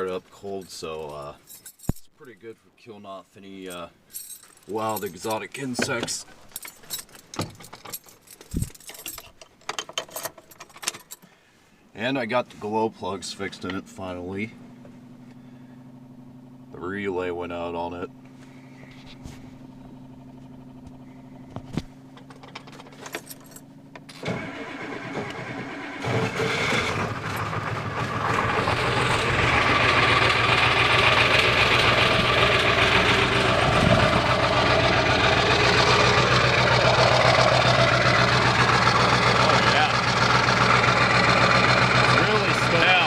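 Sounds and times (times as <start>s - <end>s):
diesel engine idling: 13.4s - 22.7s, 23.6s - 43.0s
diesel engine cranking and starting: 17.5s - 43.0s.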